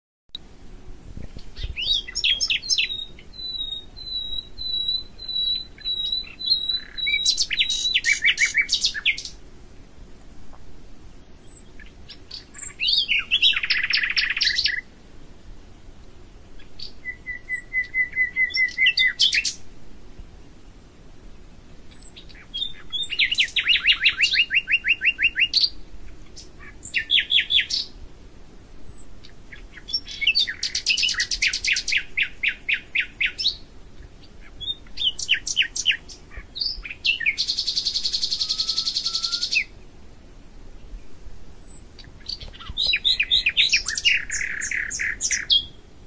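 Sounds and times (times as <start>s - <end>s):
songbird trilling: 1.4s - 9.4s, 11.2s - 14.9s, 16.6s - 19.6s, 21.7s - 28.0s, 28.6s - 39.8s, 41.4s - 45.8s.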